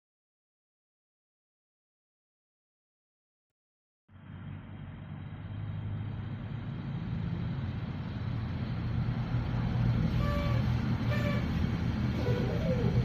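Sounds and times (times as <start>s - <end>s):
short pitched calls: 10.1s - 13.0s.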